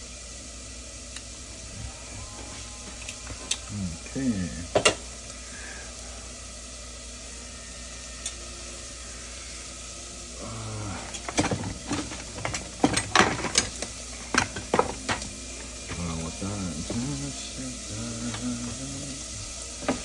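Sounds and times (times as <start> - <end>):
food sizzling: 0.0 - 20.0
kitchen utensils clicking and knocking: 11.1 - 16.1.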